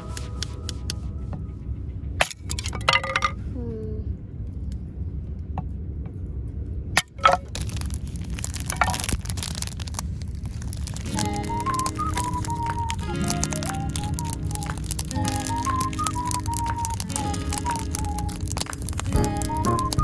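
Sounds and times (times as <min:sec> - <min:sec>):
steady low rumble: 0:00.0 - 0:13.1
firewood knocking and cracking: 0:07.0 - 0:10.0, 0:10.6 - 0:20.0.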